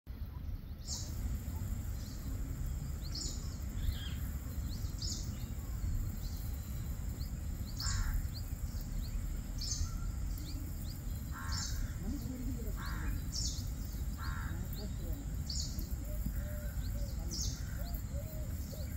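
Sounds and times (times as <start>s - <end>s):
birds chirping: 0.1s - 18.9s
steady low rumble: 0.1s - 18.9s
harsh bird cawing: 7.7s - 8.7s, 11.2s - 15.1s.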